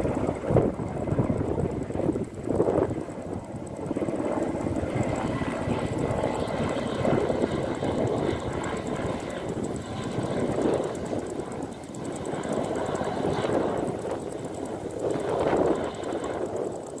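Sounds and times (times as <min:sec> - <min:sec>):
aircraft engine drone: 0:00.0 - 0:17.0.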